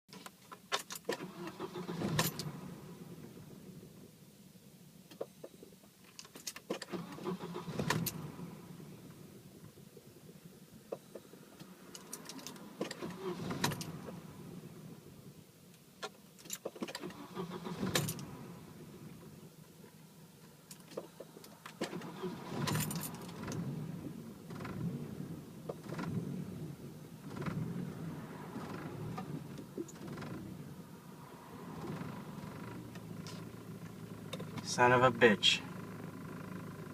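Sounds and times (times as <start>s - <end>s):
car engine cranking: 0.1s - 4.0s, 5.1s - 9.8s, 10.9s - 15.2s, 16.0s - 36.9s
starter cranking engine: 1.2s - 2.5s, 6.8s - 8.2s, 17.0s - 18.3s, 21.8s - 23.6s.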